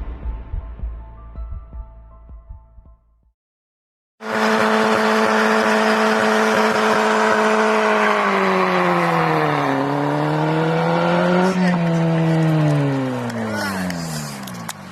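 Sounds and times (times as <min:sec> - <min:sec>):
car engine at high revs: 0:04.2 - 0:14.9.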